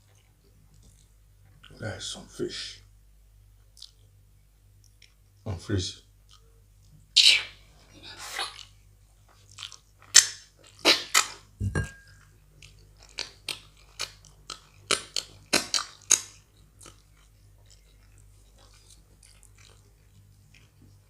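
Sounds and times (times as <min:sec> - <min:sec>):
wet chewing smacks and clicks: 0:03.6 - 0:04.2, 0:04.8 - 0:05.4, 0:08.4 - 0:11.4, 0:12.6 - 0:21.0.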